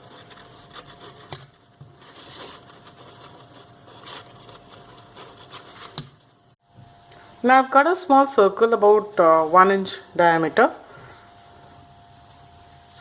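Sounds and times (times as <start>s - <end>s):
paper and card rustling: 0.0s - 6.3s.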